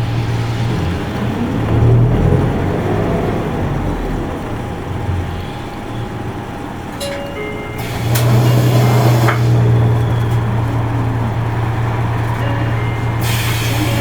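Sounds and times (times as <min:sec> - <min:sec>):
bus diesel engine drone: 0:00.0 - 0:14.0.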